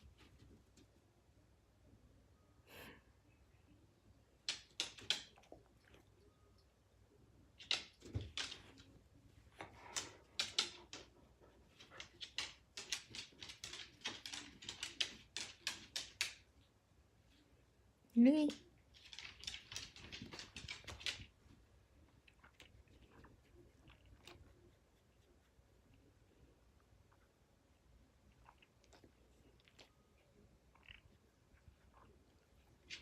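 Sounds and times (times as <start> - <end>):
pets clicking and scratching: 4.5 - 6.0, 7.6 - 16.5, 18.5 - 21.5, 30.7 - 33.0.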